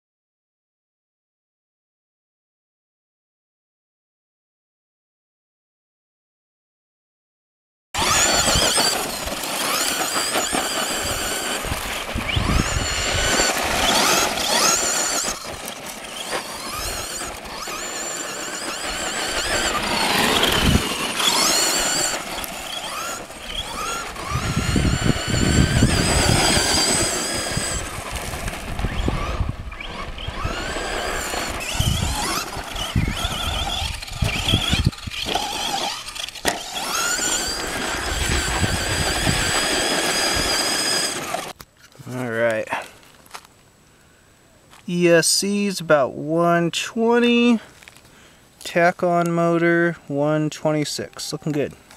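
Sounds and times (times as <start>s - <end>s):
electric motor whine: 8.0s - 41.6s
low rumbling from tyres: 8.0s - 41.6s.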